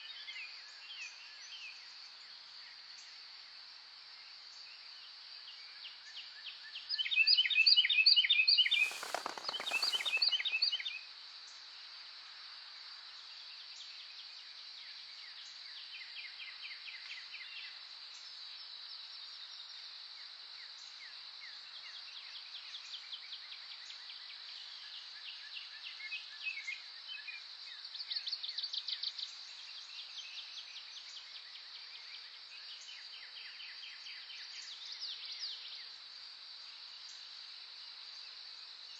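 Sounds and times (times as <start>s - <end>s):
wild birds singing: 8.6s - 10.8s
brief rush of noise: 8.7s - 10.4s.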